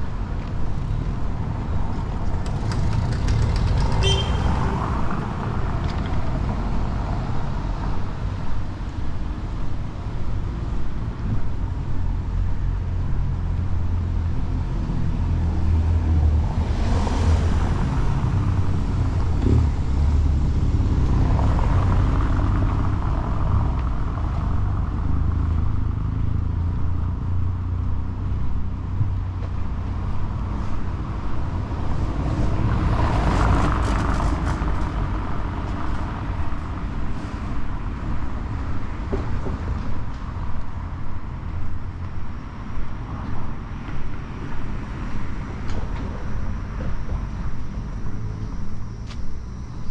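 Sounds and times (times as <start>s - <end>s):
road traffic rumble: 0.0s - 49.9s.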